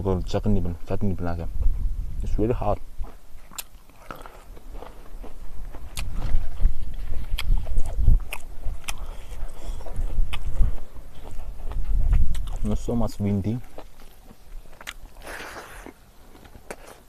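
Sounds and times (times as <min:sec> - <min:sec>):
close-up chewing: 0:03.0 - 0:17.0
wet mouth clicks and smacks: 0:03.5 - 0:04.2, 0:07.3 - 0:10.6, 0:11.2 - 0:12.6, 0:13.8 - 0:15.0.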